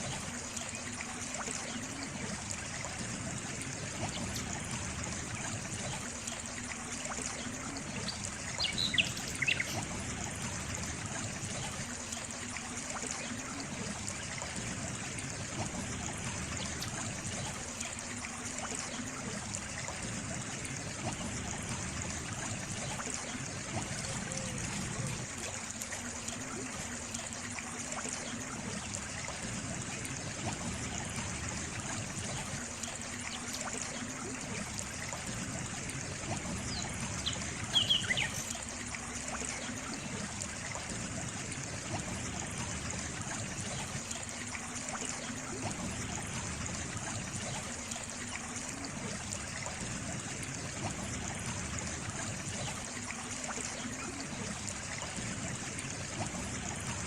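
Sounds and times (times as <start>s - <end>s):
water trickling: 0.0s - 57.0s.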